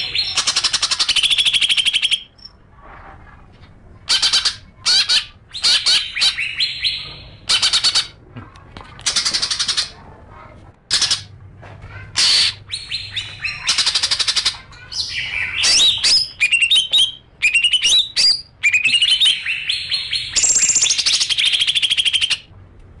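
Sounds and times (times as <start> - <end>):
songbird trilling and chirping: 4.1 - 8.0, 12.2 - 22.4.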